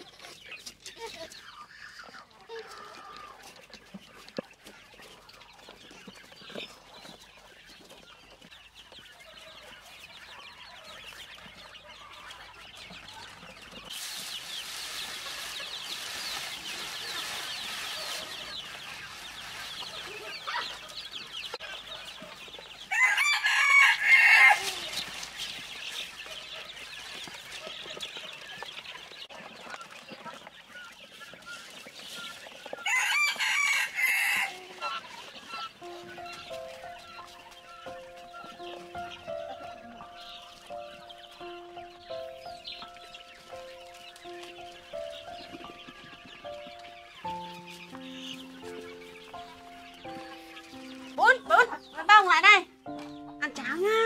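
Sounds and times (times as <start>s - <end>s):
chickens clucking: 0.0s - 54.0s
rooster crowing: 22.9s - 24.9s, 32.8s - 34.7s.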